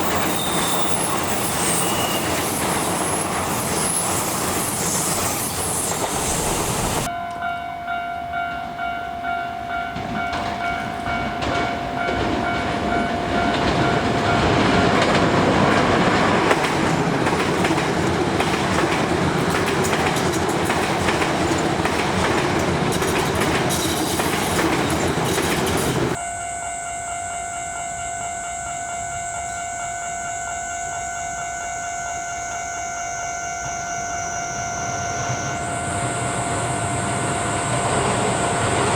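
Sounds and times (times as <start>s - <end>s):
train wheels clacking over rail joints: 10.0s - 26.2s.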